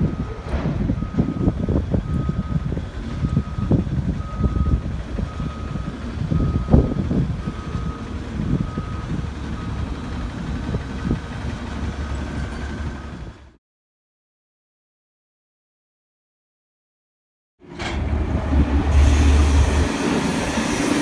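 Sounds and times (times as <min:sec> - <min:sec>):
truck reversing alarm beeping: 0:00.0 - 0:13.4
truck engine rumble: 0:00.0 - 0:13.6, 0:17.6 - 0:21.0.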